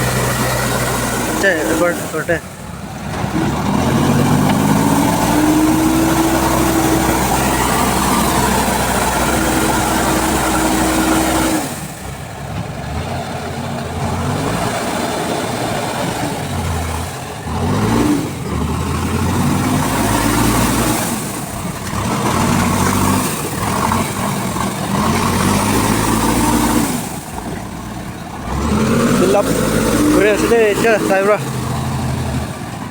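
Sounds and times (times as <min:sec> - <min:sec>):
heavy vehicle engine revving: 0:00.0 - 0:32.9.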